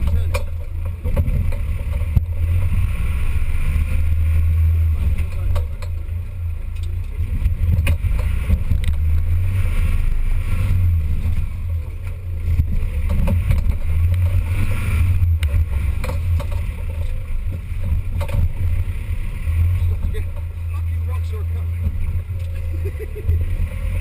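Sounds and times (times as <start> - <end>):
knocks and rattles: 0.0 - 2.9, 5.0 - 9.3, 11.3 - 18.9, 19.7 - 22.7
vehicle engine droning: 0.0 - 24.0.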